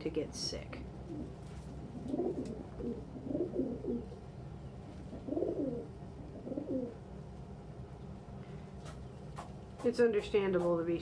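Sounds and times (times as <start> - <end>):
pigeons cooing: 1.0 - 4.3, 5.0 - 7.1.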